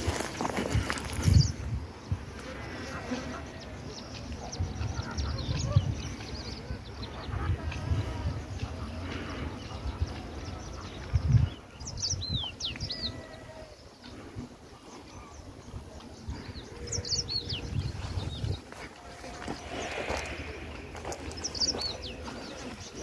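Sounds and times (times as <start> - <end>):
wind rumble on microphone: 0.0 - 2.7, 4.4 - 13.5, 15.6 - 22.9.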